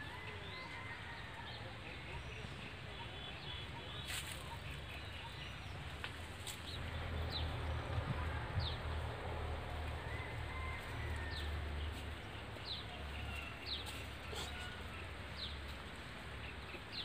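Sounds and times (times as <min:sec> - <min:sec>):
small birds chirping: 0:01.5 - 0:09.0
steady low rumble: 0:04.8 - 0:13.2.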